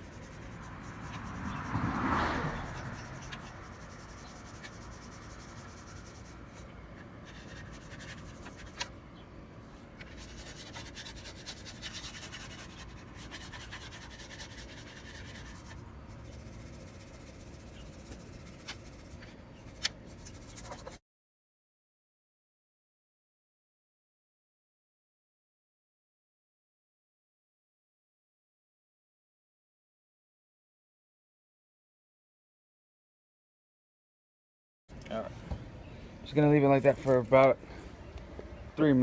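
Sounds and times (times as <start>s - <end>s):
cloth scrubbing plastic lens: 2.6s - 8.9s, 10.0s - 21.0s.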